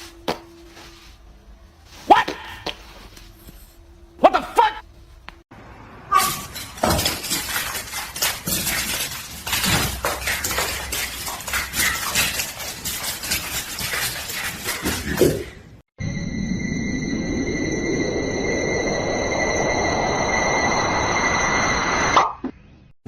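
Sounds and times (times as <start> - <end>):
clattering and clinking dishes: 6.2 - 15.6
steady electronic tones: 16.0 - 22.2.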